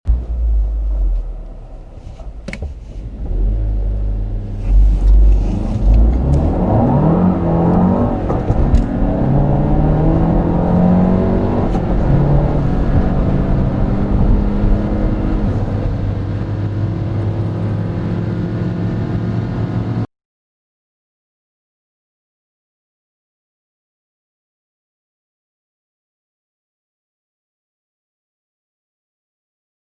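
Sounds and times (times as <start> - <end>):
car engine accelerating hard: 0.1 - 20.1.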